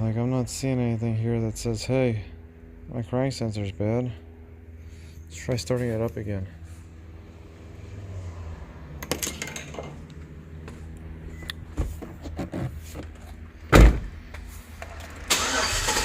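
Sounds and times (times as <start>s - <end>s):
low steady hum: 0.0s - 16.0s
loud heavy thump: 13.7s - 14.2s.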